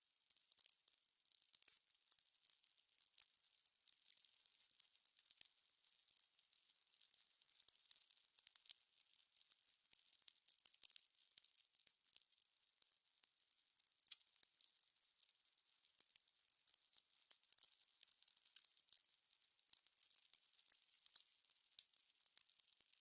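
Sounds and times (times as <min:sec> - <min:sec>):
fire crackling and popping: 0:00.2 - 0:23.0.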